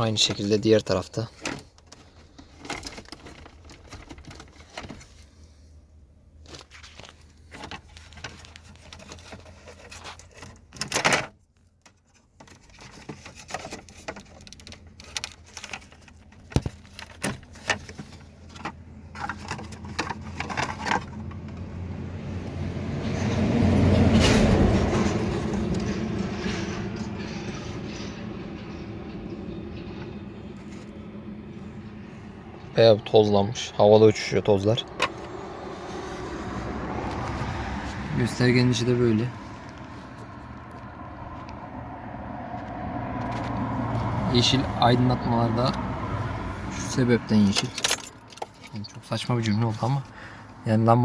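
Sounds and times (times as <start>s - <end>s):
plastic parts clicking and rattling: 0.2s - 5.3s, 6.4s - 21.7s, 47.3s - 48.8s.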